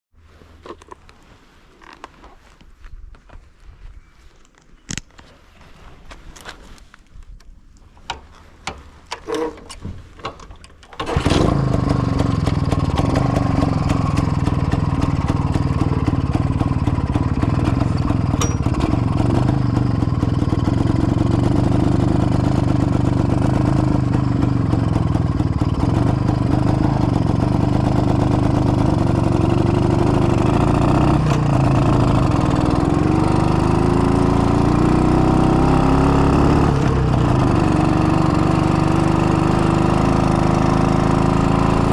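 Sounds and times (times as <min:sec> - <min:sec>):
motorcycle engine running: 0:11.0 - 0:41.9.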